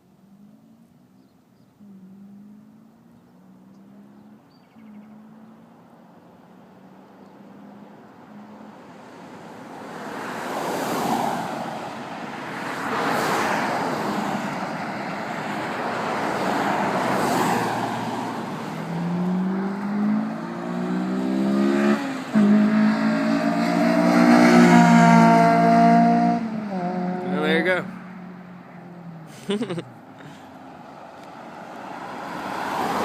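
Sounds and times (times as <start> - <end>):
passing traffic: 0.0 - 33.0
car accelerating hard: 12.6 - 27.9.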